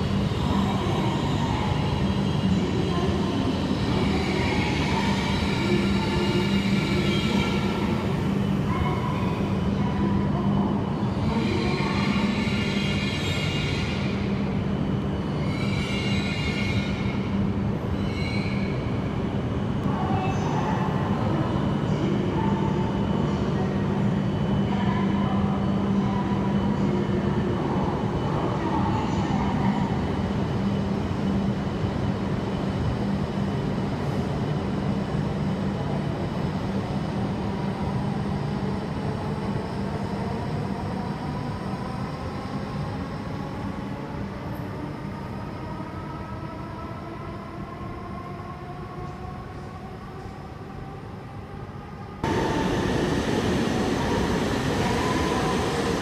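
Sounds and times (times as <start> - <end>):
train hum: 0.0 - 56.0
train electric whine rising: 52.2 - 56.0.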